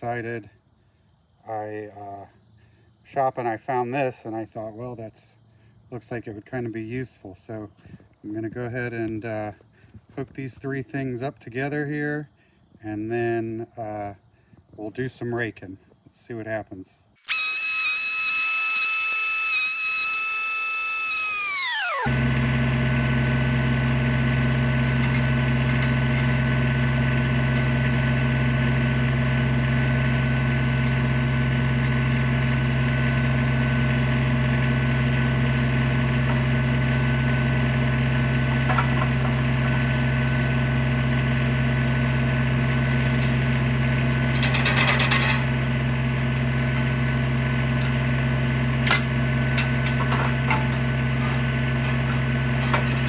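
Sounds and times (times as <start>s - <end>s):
short rattling burst: 17.2s - 22.2s.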